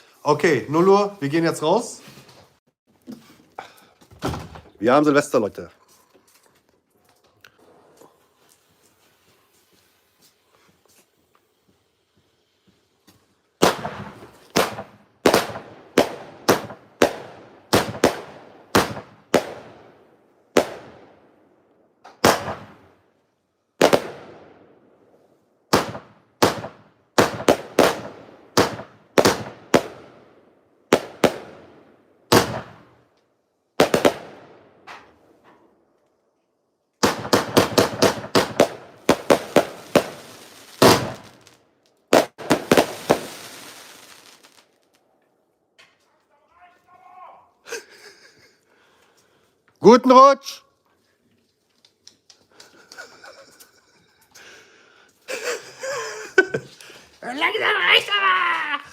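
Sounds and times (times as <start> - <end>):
fireworks bangs echoing: 13.6 - 23.0, 23.8 - 25.1, 25.7 - 33.1, 33.8 - 35.3, 37.0 - 44.9.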